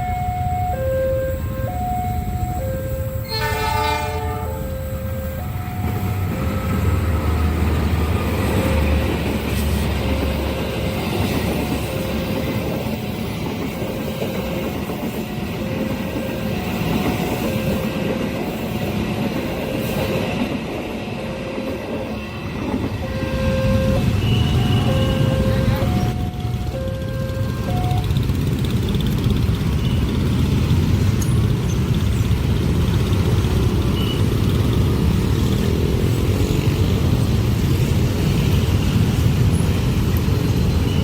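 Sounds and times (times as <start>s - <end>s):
train rumble and wheel clatter: 0.0s - 41.0s
train horn blast: 3.2s - 5.3s, 23.0s - 26.1s.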